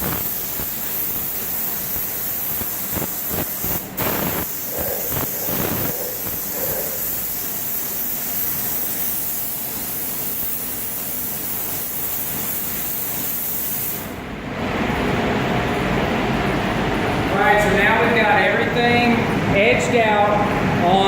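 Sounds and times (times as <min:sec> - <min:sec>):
booth fan running: 0:00.0 - 0:10.0, 0:10.8 - 0:21.0
spray gun hissing: 0:00.0 - 0:14.2.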